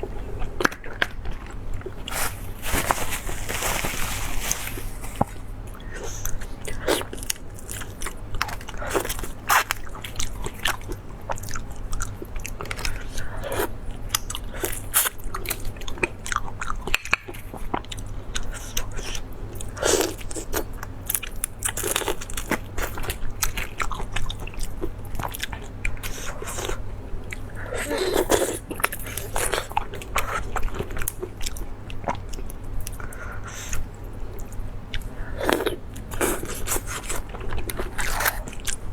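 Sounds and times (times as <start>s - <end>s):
steady low hum: 0.0s - 16.9s
person chewing crunchy food: 0.0s - 38.9s.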